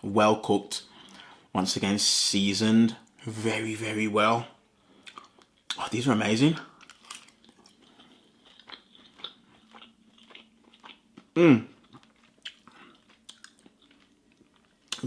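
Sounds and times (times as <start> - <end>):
person chewing food: 5.0 - 5.8, 6.7 - 15.0
person humming mm: 11.4 - 11.8.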